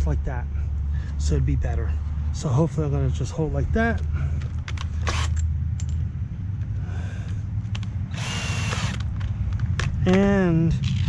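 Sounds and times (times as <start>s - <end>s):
power drill driving a screw: 5.0s - 5.4s, 8.1s - 9.1s
sharp clicks: 7.8s - 10.2s.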